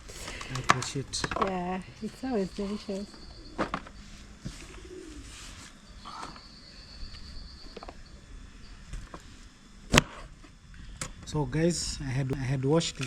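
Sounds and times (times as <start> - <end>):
bird low call: 2.2 - 8.9.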